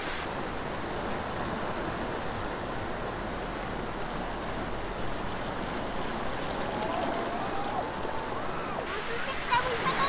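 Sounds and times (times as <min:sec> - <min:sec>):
foaming water washing over sand: 0:00.0 - 0:01.0, 0:03.8 - 0:10.0
small waves breaking: 0:00.0 - 0:10.0.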